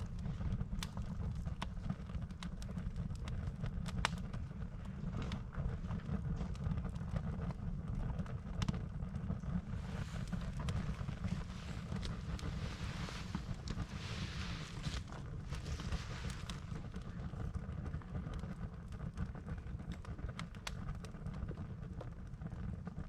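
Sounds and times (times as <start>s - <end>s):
campfire crackling and popping: 0.0s - 23.0s
low rumble: 8.2s - 18.5s.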